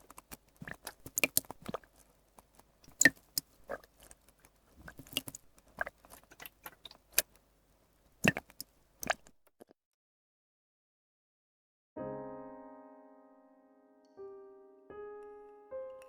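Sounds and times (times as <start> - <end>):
water dripping from dropper: 0.0 - 7.4, 8.2 - 9.3.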